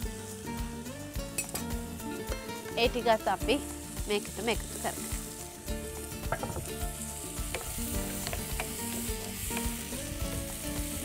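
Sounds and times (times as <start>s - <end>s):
food sizzling in hot oil: 0.0s - 11.0s
wooden spoon knocking and scraping pan: 6.2s - 6.8s, 7.4s - 9.7s.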